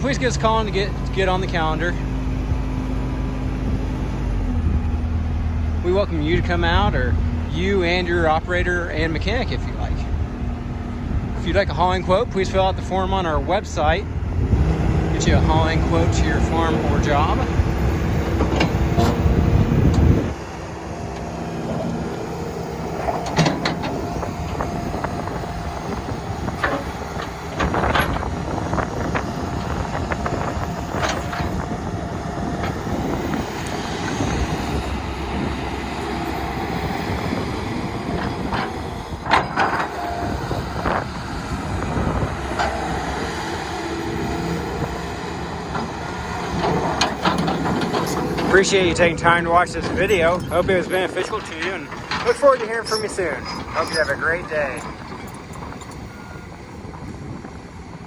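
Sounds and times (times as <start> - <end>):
excavator diesel engine running: 0.0 - 58.0
sharp metallic clanks and knocks: 46.5 - 56.0.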